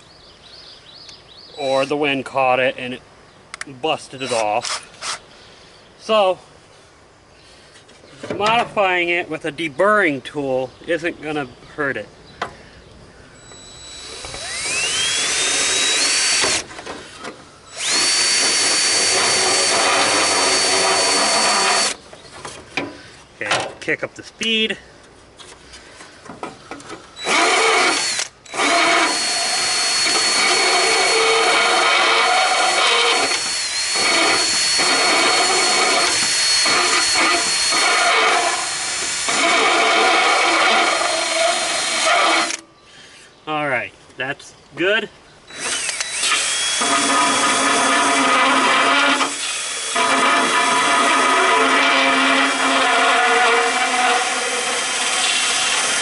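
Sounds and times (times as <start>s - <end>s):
rotary tool whining and grinding: 4.2s - 5.2s, 13.4s - 22.0s, 26.7s - 42.6s, 45.5s - 56.0s.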